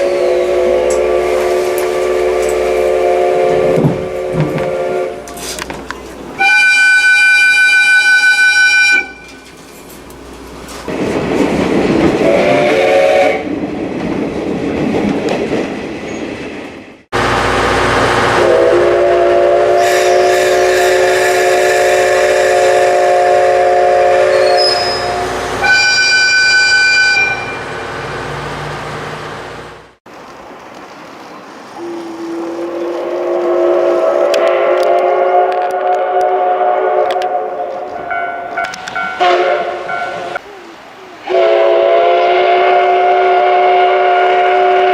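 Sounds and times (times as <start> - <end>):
steam locomotive whistle blasts: 0.0 - 5.6, 6.4 - 9.4, 12.2 - 13.4, 18.2 - 27.7, 31.8 - 40.4, 41.2 - 44.9
train running noise: 0.0 - 44.9.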